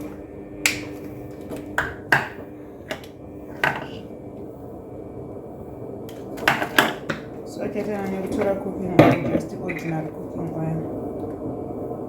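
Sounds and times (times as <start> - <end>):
utensils clinking on a counter: 3.6 - 4.0.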